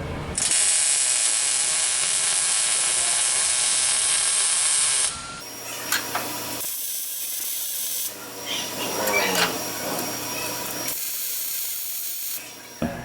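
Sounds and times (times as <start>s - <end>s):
welding arc sizzling hiss: 0.4s - 12.6s.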